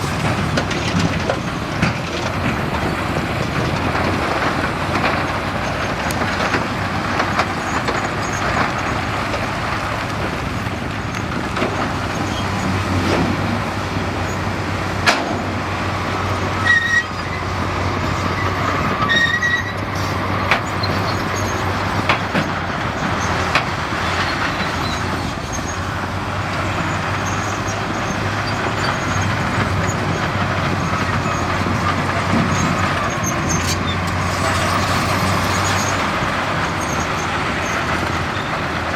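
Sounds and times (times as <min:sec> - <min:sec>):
bulldozer diesel engine: 0:00.0 - 0:38.9
track clatter: 0:00.0 - 0:38.9
short squeaks: 0:16.6 - 0:22.1, 0:32.6 - 0:38.6.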